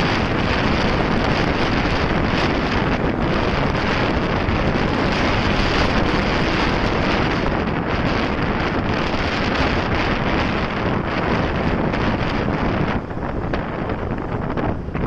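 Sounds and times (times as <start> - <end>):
motorcycle road noise: 0.0 - 15.0
wind noise on microphone: 0.0 - 15.0.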